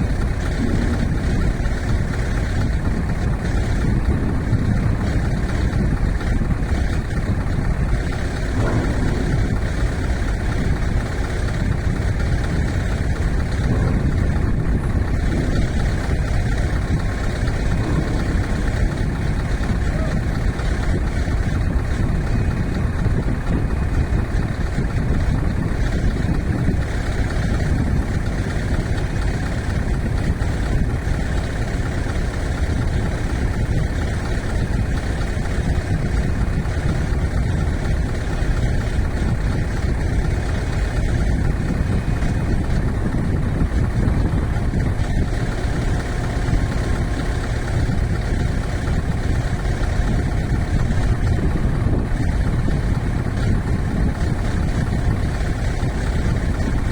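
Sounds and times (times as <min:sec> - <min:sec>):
truck diesel engine rumbling: 0:00.0 - 0:56.9.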